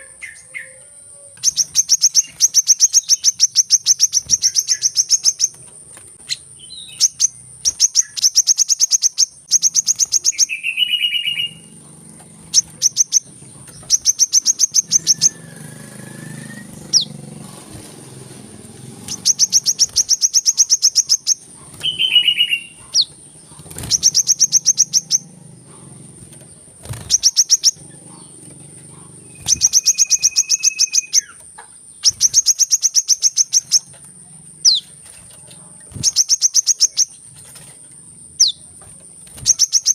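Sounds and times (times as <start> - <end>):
bird chipping calls: 0.0 - 39.9
low whistled bird notes: 13.9 - 17.2, 19.0 - 23.1, 29.2 - 31.4.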